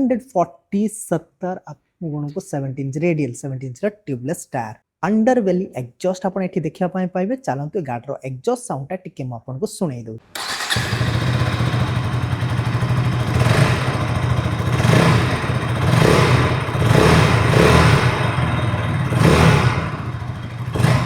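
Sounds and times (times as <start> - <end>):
engine throttle blips: 10.3 - 21.0
motorcycle engine idling: 10.4 - 21.0.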